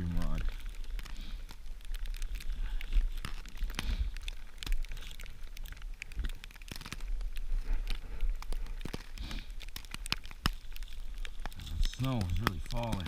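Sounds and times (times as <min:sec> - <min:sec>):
dry tinder crackling: 0:00.0 - 0:13.0.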